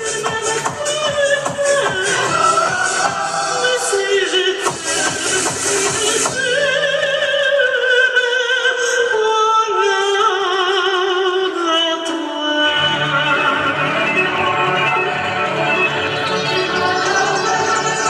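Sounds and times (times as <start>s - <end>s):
musical accompaniment: 0.0s - 7.7s, 11.5s - 18.0s.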